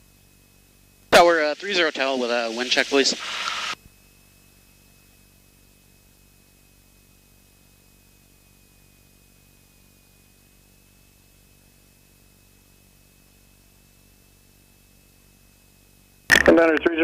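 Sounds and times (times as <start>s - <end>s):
radio static hiss: 1.1s - 3.8s, 16.3s - 17.0s
high-pitched whine: 1.2s - 3.8s.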